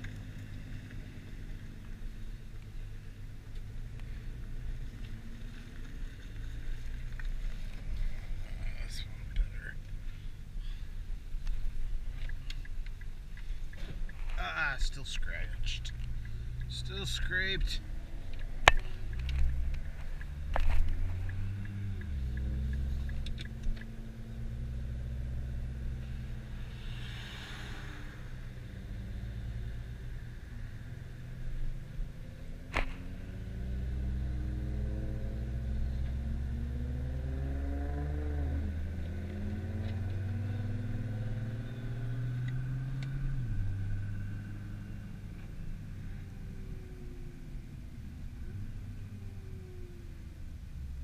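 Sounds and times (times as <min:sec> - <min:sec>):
car engine running at low revs: 0:00.0 - 0:51.0
hiss: 0:26.7 - 0:28.3.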